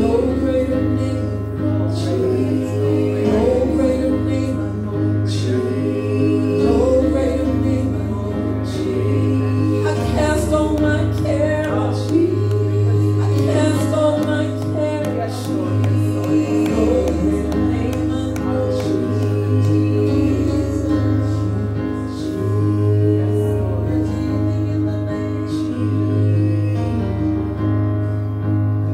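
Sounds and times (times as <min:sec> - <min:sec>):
held bass line: 0:00.0 - 0:28.0
group singing gospel song: 0:00.0 - 0:28.2.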